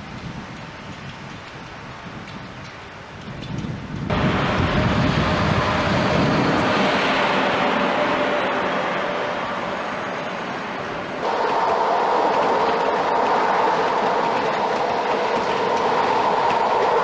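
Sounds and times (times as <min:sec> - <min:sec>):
train rushing and rumbling past: 0:00.0 - 0:17.0
steady hum: 0:04.1 - 0:17.0.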